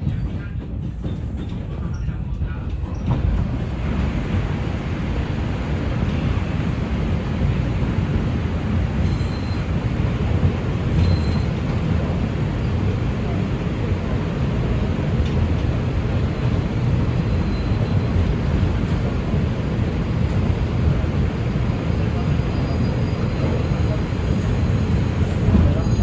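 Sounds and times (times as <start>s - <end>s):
subway train wheels rumbling: 0.0s - 26.0s
faint high squeals: 10.9s - 11.6s, 17.2s - 18.2s, 22.2s - 26.0s.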